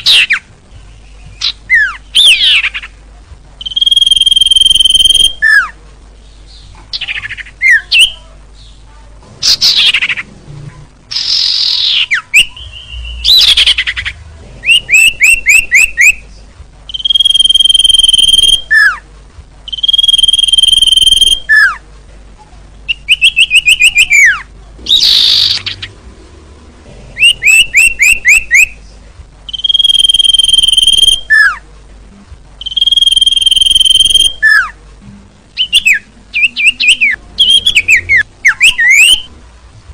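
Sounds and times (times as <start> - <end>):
songbirds calling: 0.0 - 10.4, 11.1 - 19.1, 19.7 - 21.8, 22.9 - 26.1, 26.9 - 31.6, 32.6 - 34.8, 35.6 - 39.3
harsh rasping bird calls: 9.4 - 10.3, 22.9 - 26.0.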